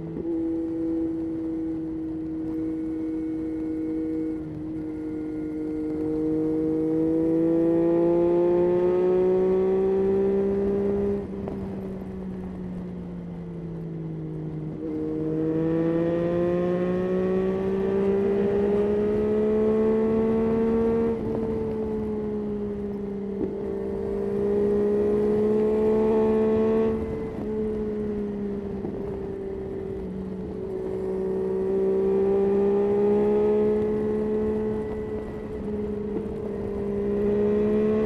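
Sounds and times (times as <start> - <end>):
motorcycle engine accelerating: 0.0 - 38.0.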